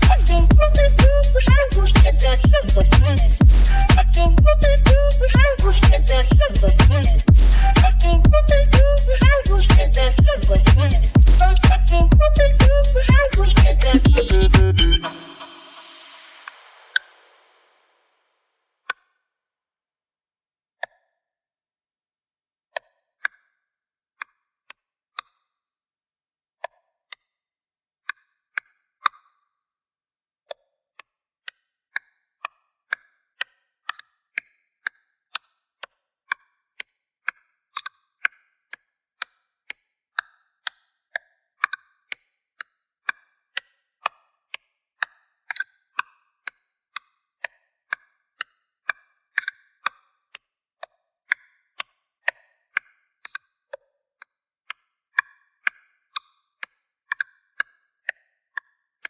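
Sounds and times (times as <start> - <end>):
electronic percussion clicks: 0.0 - 17.5.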